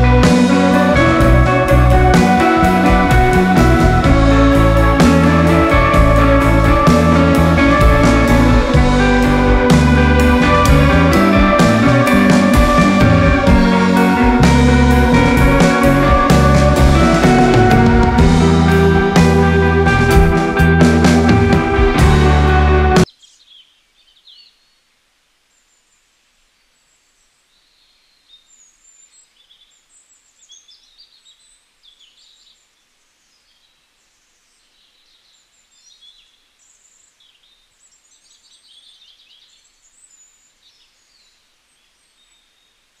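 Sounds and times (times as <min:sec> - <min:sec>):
birds chirping and twittering: 0:23.0 - 0:43.0.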